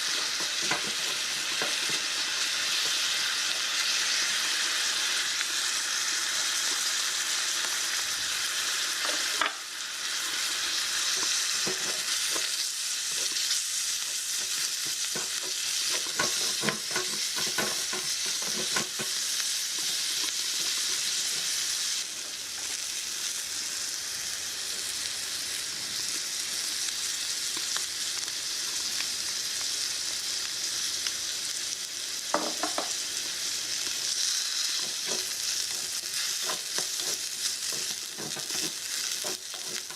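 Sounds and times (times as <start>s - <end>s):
food sizzling in oil: 0.0s - 39.9s
utensil tapping and scraping pan: 0.3s - 2.0s, 11.1s - 12.5s, 14.2s - 19.2s, 32.3s - 32.9s, 34.8s - 39.9s.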